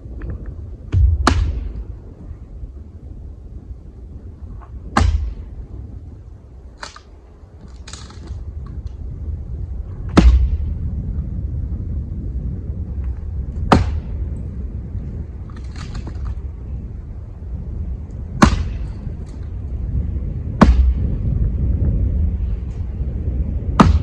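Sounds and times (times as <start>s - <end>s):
low wind rumble: 0.0s - 24.0s
heavy wooden knocks: 0.9s - 1.8s.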